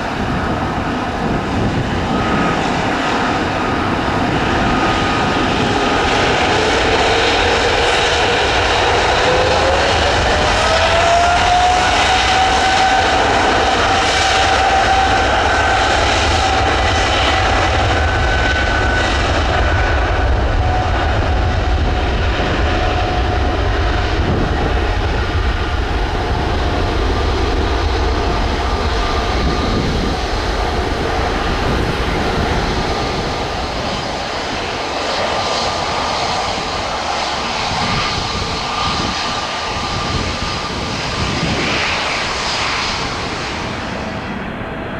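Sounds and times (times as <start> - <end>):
jet engines roaring at take-off: 0.0 - 44.9.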